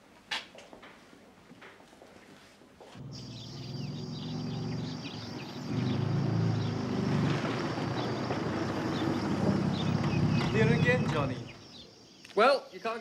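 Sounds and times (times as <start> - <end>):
car engine running: 3.0 - 11.7
birds chirping: 3.0 - 13.0.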